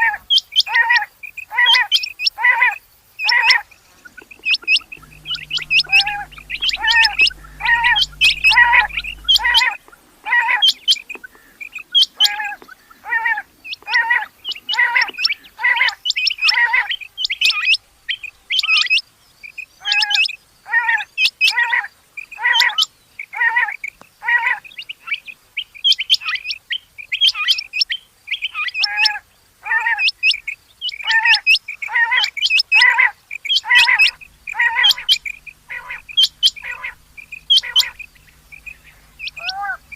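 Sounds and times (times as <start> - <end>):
quail call notes: 3.3 - 11.6, 31.2 - 39.9.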